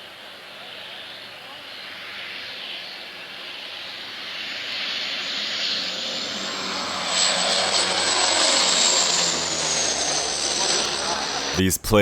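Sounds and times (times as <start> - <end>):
aircraft engine noise: 0.0 - 12.0
high engine whine rising: 0.2 - 12.0.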